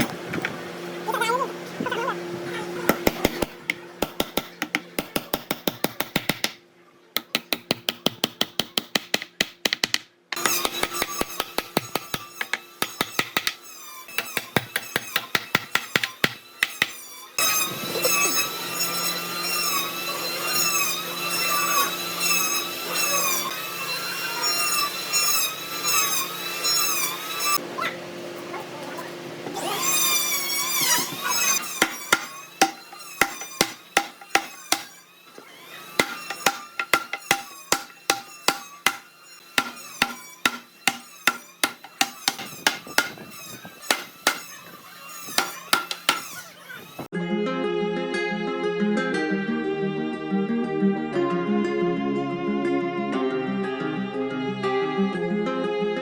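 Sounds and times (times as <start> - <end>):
tool strikes on wood: 2.9 - 6.6, 7.2 - 13.6, 14.2 - 17.0, 31.6 - 35.0, 36.0 - 44.5, 45.4 - 46.4
power tool whining: 10.3 - 27.6, 29.4 - 47.1.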